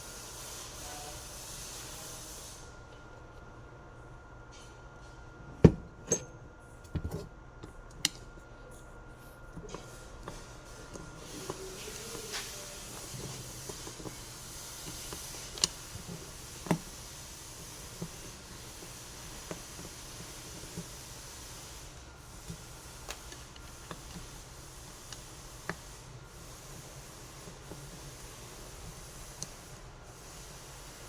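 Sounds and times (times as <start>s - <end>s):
steady hiss: 0.0s - 2.8s, 9.8s - 31.0s.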